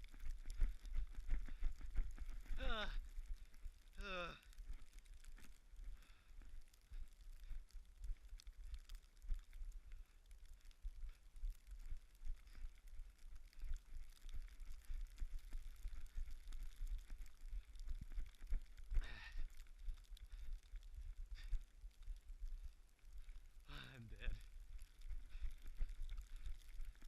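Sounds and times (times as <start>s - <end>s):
running footfalls: 0.0s - 10.2s, 10.8s - 23.4s, 24.3s - 27.0s
breathy vocal sound: 2.6s - 3.0s, 4.0s - 4.5s.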